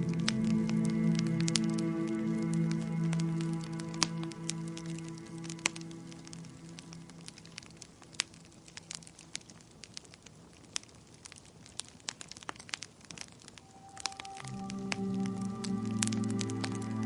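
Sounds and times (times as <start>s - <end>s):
soft music: 0.0s - 8.0s, 13.6s - 17.0s
wood fire crackling: 0.0s - 17.0s.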